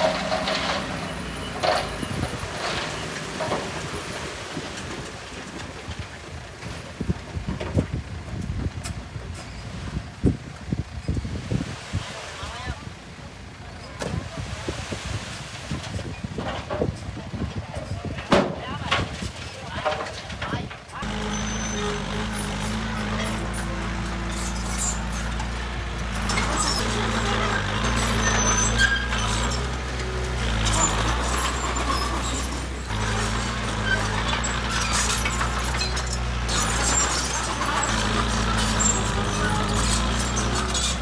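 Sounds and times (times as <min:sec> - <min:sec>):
heavy diesel machinery engine: 0:00.0 - 0:10.8, 0:19.2 - 0:41.0
gritty rattling and scraping: 0:00.0 - 0:41.0.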